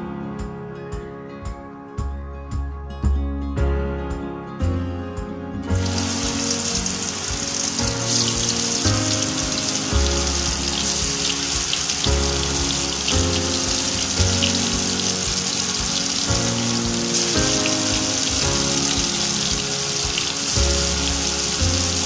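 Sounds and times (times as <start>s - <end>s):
soft background music: 0.0s - 22.0s
sizzling in hot oil: 5.8s - 22.0s.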